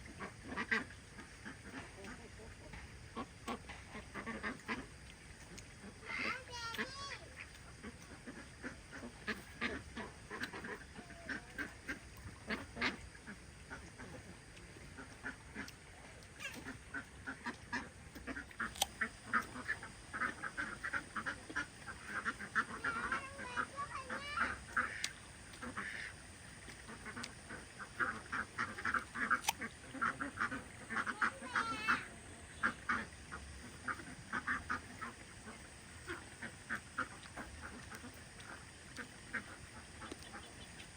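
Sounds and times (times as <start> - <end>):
waterfowl calling: 0.0 - 40.9
sharp clicks: 18.6 - 19.0, 29.4 - 29.6.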